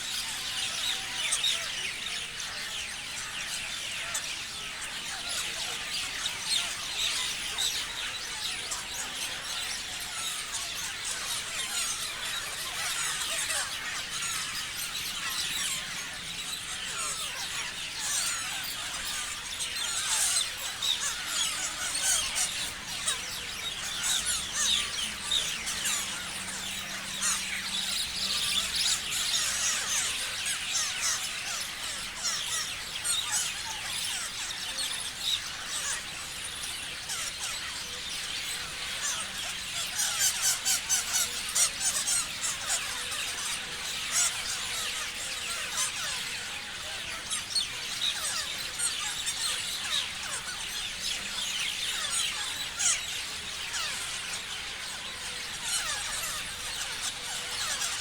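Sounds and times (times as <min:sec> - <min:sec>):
parrots chirping: 0:03.6 - 0:58.0.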